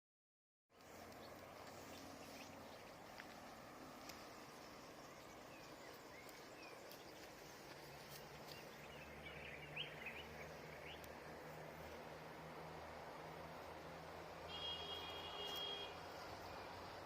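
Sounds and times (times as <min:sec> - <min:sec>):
vehicle engine humming: 0:00.7 - 0:17.0
bird chirps: 0:07.9 - 0:11.1.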